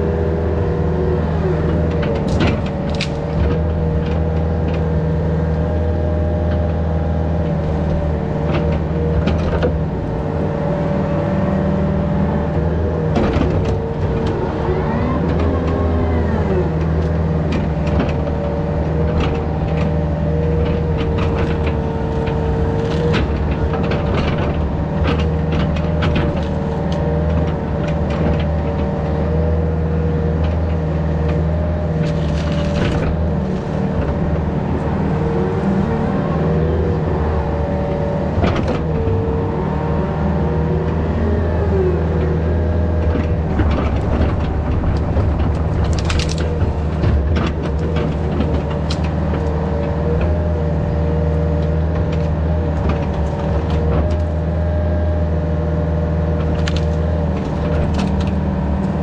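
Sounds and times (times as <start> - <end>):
excavator diesel engine running: 0.0 - 59.0
hydraulic whine: 7.4 - 55.4
knocks and clanks: 13.1 - 16.0, 43.0 - 50.5.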